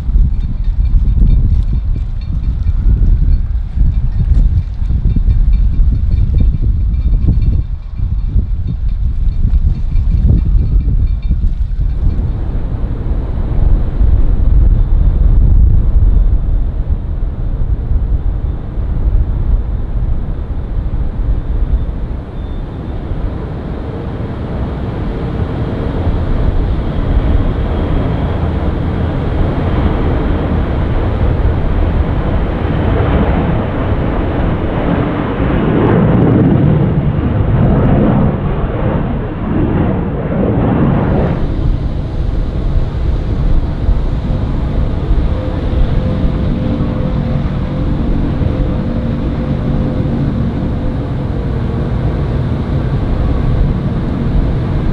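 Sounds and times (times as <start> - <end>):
jet airliner engines roaring: 11.8 - 54.9.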